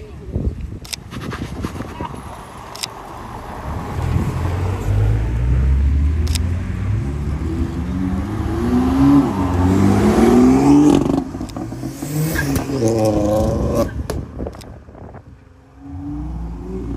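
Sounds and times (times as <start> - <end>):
car accelerating past: 3.2 - 13.9.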